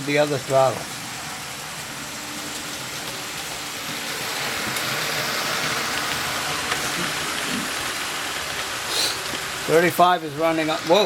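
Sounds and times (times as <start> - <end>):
model trains rolling rumble: 0.0 - 11.0.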